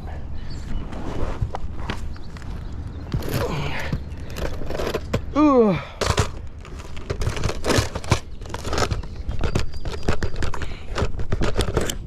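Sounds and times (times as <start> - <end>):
crinkling and scraping material: 4.2 - 5.3, 6.0 - 12.0.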